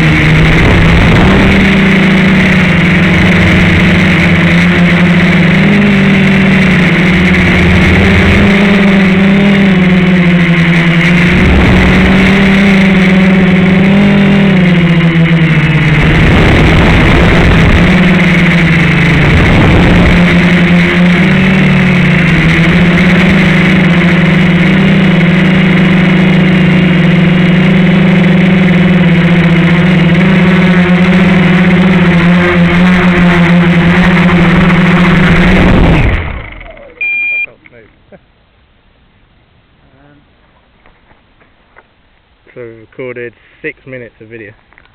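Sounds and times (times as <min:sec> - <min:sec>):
rushes of air noise: 0:00.0 - 0:36.7
quadcopter motors whining: 0:00.0 - 0:38.1.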